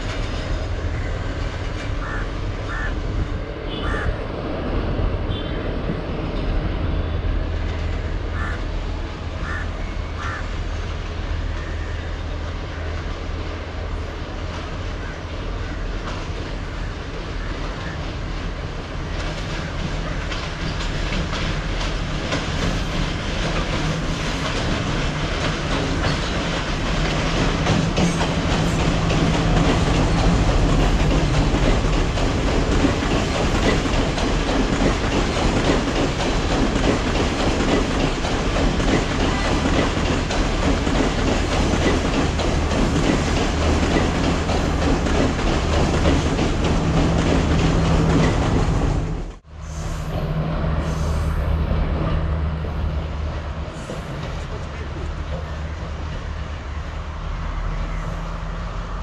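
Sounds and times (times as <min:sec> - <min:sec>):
train wheels clattering over rails: 0:00.0 - 0:03.3, 0:14.3 - 0:49.4
diesel train engine droning: 0:00.0 - 0:59.0.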